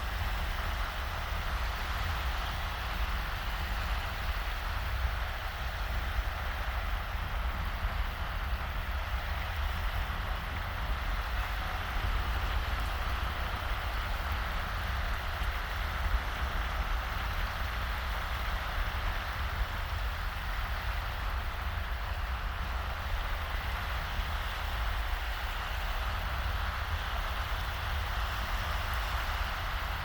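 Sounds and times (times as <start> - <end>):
small waves washing on sand: 0.0 - 30.0.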